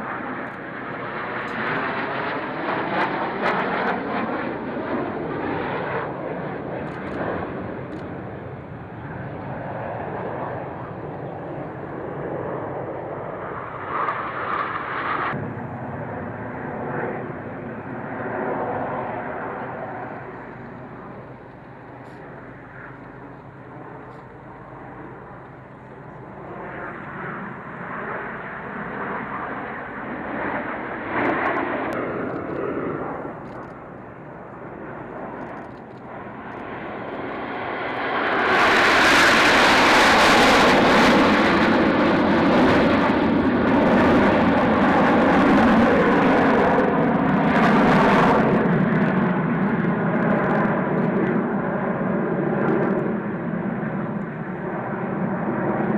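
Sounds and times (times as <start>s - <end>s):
aircraft flying past: 0.0s - 55.9s.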